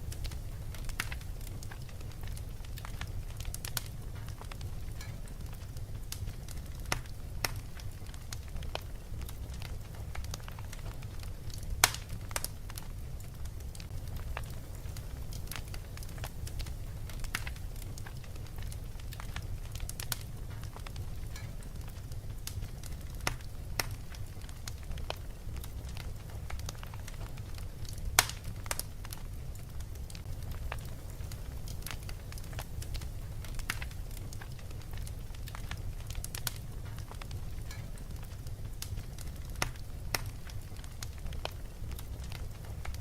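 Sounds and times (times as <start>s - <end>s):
fireplace crackling and popping: 0.0s - 43.0s
low fire rumble: 0.0s - 43.0s.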